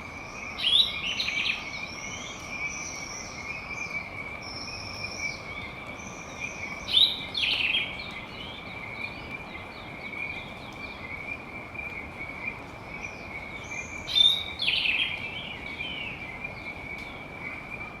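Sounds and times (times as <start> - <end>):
tropical forest birds calling: 0.0 - 18.0.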